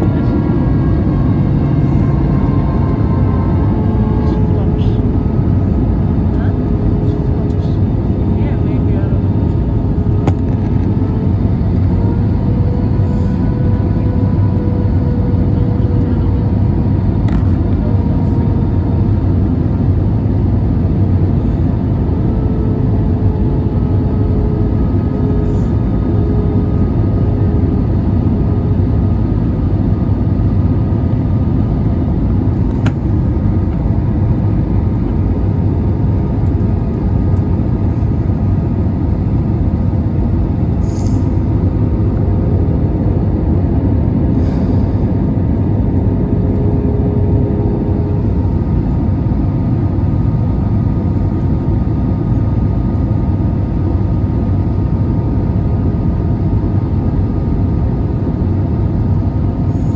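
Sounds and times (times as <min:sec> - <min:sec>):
jet engine cabin drone: 0:00.0 - 0:59.9
low hum: 0:00.0 - 0:59.9.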